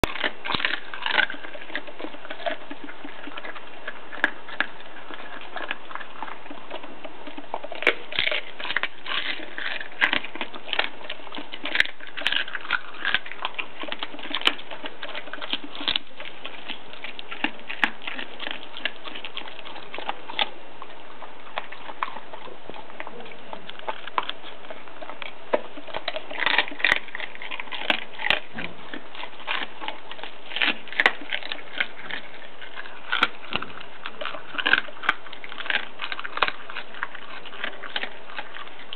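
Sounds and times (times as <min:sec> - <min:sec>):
dog crunching bone: 0:00.0 - 0:38.9.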